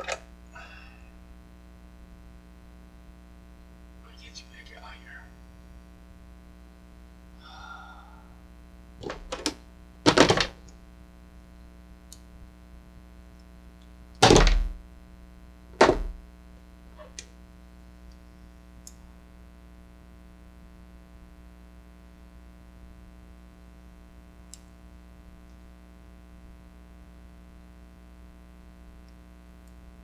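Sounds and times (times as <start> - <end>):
tools set down on workbench: 0.0 - 0.2, 9.0 - 10.6, 14.2 - 14.8, 15.8 - 16.2
faint electrical hum: 0.0 - 30.0.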